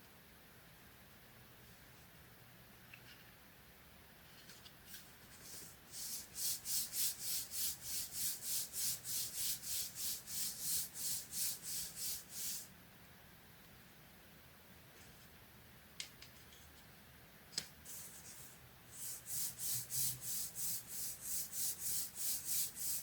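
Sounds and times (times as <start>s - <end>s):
rubbing on paper: 5.3s - 12.7s, 17.9s - 23.0s.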